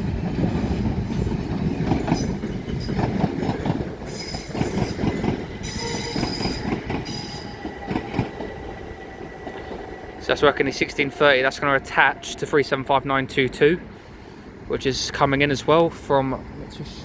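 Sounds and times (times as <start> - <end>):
train rumbling over rail joints: 0.0 - 17.0
train wheels squealing: 2.1 - 8.5.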